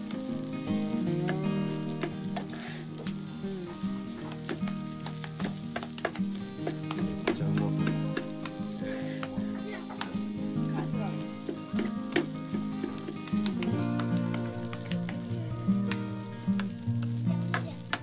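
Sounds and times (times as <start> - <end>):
rice sizzling: 0.0 - 18.0
spatulas clacking on pan: 4.2 - 10.5, 11.1 - 15.2.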